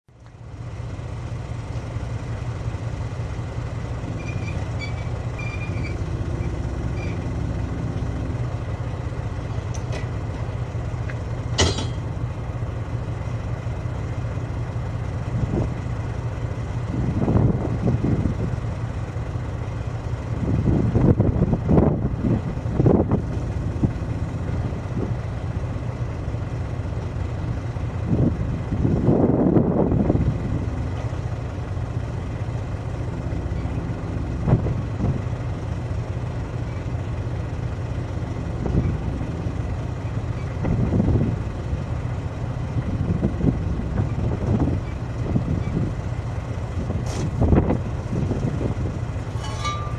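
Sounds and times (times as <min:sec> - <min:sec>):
diesel engine idling: 0:00.1 - 0:49.9
metallic clanks and knocks: 0:11.1 - 0:12.2, 0:49.2 - 0:49.9.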